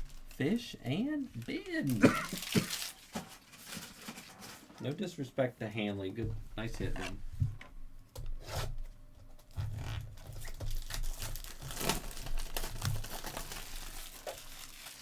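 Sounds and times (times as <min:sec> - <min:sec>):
wrappers crinkling and tearing: 0:00.0 - 0:05.1, 0:09.5 - 0:15.0.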